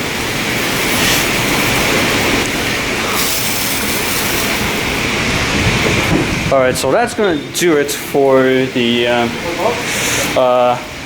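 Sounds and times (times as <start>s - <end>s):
spray wand hissing: 0.7s - 2.1s, 3.0s - 5.3s.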